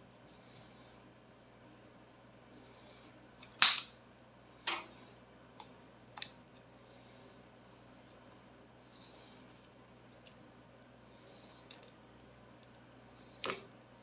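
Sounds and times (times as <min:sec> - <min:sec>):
faint steady hum: 0:00.0 - 0:14.0
sharp snaps: 0:03.4 - 0:04.0.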